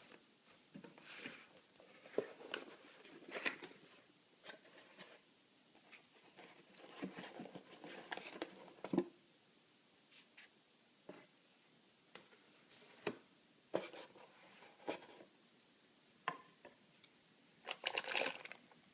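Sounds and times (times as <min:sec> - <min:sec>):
hands handling packaging: 0:17.6 - 0:18.6.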